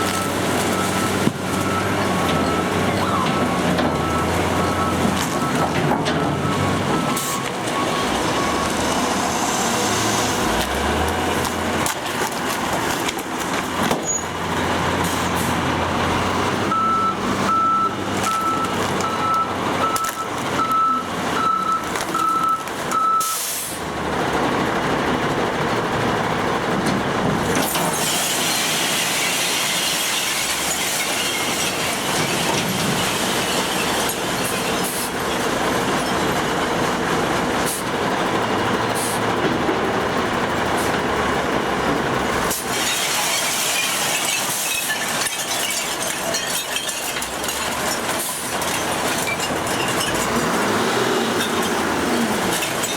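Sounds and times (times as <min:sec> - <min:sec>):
truck engine and machinery: 0:00.0 - 0:52.9
air brake hiss: 0:23.2 - 0:23.8.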